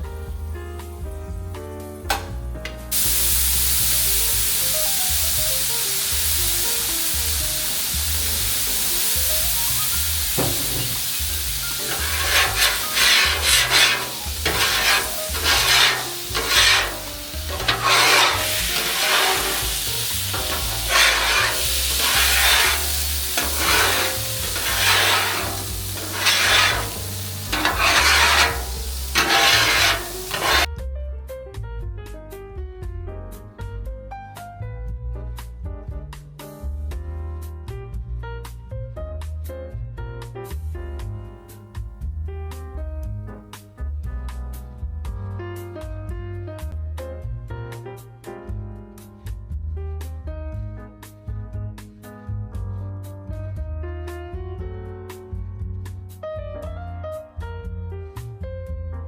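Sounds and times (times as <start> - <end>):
food sizzling on a griddle: 2.9 - 30.7
spatula scraping a griddle: 10.3 - 30.7.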